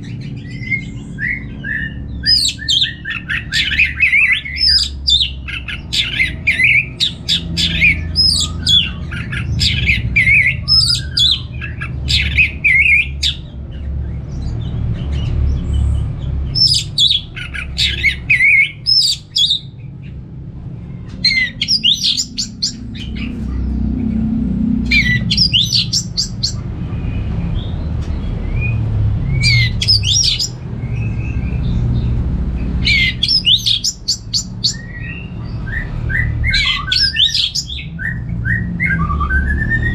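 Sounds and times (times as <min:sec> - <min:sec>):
steady low hum: 0:00.0 - 0:33.2
thrush singing: 0:16.0 - 0:39.9.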